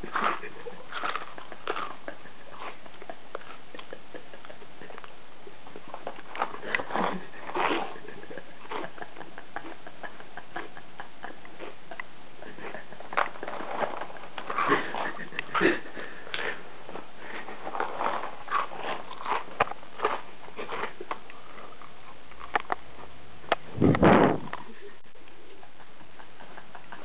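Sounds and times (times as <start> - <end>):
person chewing crunchy cereal: 0.0 - 3.8, 6.0 - 9.0, 13.1 - 22.8.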